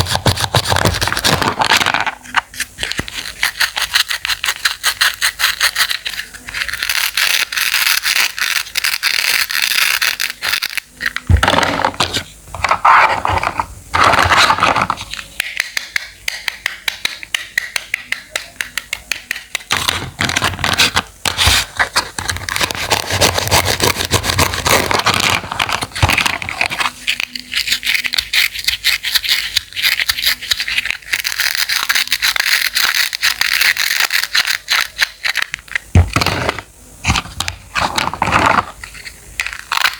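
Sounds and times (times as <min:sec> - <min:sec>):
knife scraping: 0:02.2 - 0:11.2.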